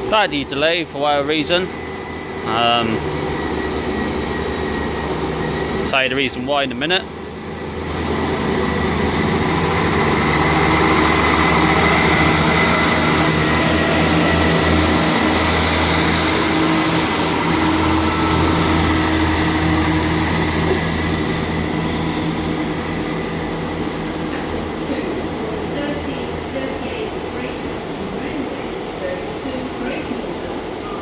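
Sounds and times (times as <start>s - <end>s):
thin high whine: 0.0s - 30.2s
train diesel engines droning: 0.0s - 31.0s.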